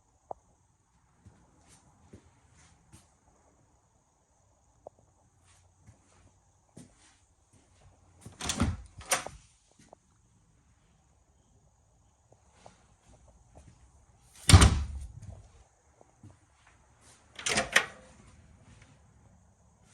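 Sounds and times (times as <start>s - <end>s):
door shutting thump: 14.5s - 15.4s.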